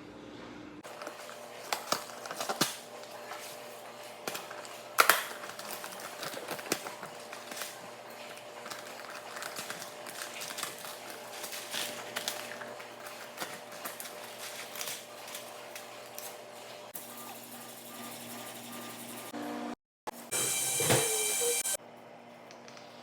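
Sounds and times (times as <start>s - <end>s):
kitchen items clicking and knocking: 0.8s - 16.3s.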